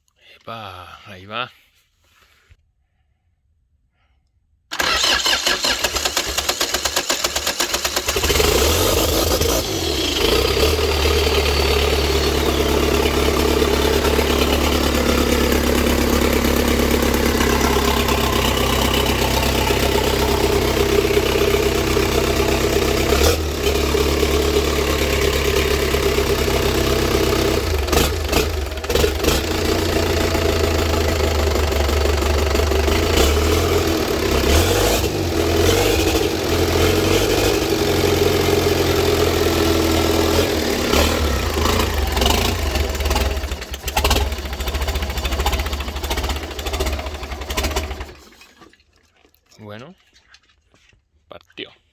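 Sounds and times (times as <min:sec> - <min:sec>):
diesel engine running: 0:04.7 - 0:48.3
diesel engine cranking on starter: 0:04.7 - 0:48.7.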